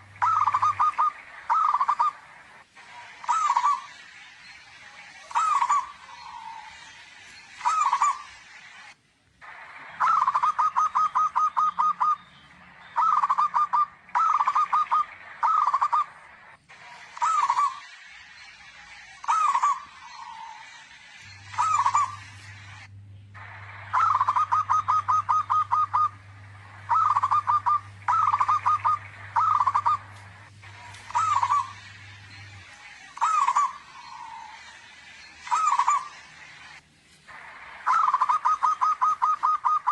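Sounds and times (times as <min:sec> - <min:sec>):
dove cooing: 0:00.0 - 0:02.3, 0:03.2 - 0:03.9, 0:05.3 - 0:06.8, 0:07.6 - 0:08.3, 0:10.0 - 0:12.2, 0:13.0 - 0:16.2, 0:21.4 - 0:22.8, 0:23.5 - 0:31.8, 0:33.2 - 0:34.6, 0:35.5 - 0:36.1, 0:37.8 - 0:39.9.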